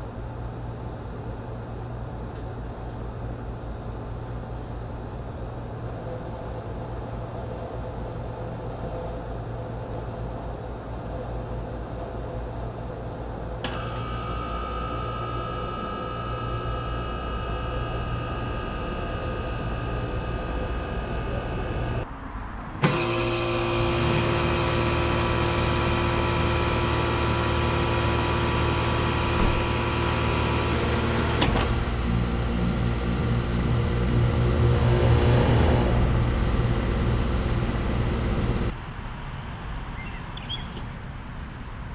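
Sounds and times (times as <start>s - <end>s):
air conditioner units humming: 0.0s - 22.1s, 22.8s - 38.8s
whining tones: 13.6s - 22.0s, 22.8s - 38.7s.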